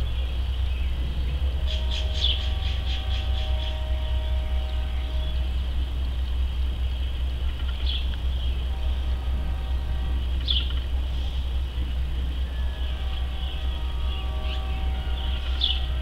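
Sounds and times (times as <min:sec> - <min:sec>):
faint high hum: 0:00.0 - 0:16.0
low rumble: 0:00.0 - 0:16.0
small bird chirping: 0:06.1 - 0:08.6, 0:10.4 - 0:11.0.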